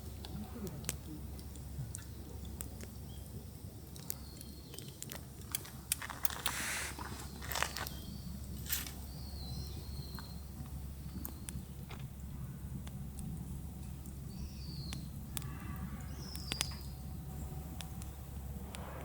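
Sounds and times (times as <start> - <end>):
sharp clicks and crackles: 0.0 - 12.2, 12.8 - 19.0
steady low hum: 0.0 - 19.0
brief rustle: 5.5 - 9.0.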